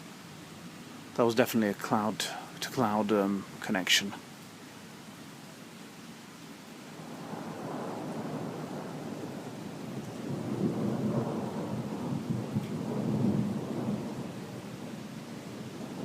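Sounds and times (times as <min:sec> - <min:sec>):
heavy rain hissing: 0:00.0 - 0:16.0
rolling thunder: 0:07.0 - 0:16.0.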